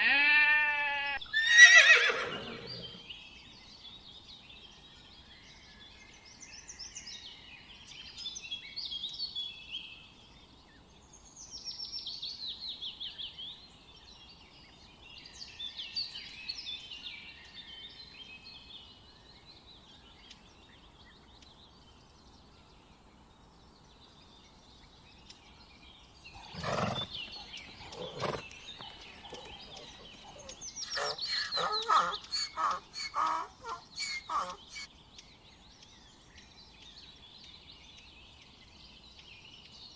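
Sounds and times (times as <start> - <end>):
fowl calls: 26.4 - 34.9
fowl chirping: 26.4 - 34.9.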